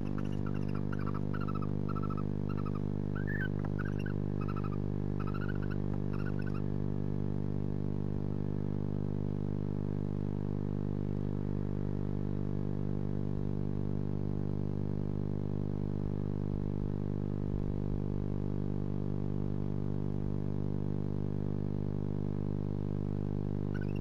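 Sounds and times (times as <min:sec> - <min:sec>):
barn owl chittering call: 0:00.0 - 0:06.7, 0:23.7 - 0:24.0
electrical hum: 0:00.0 - 0:24.0.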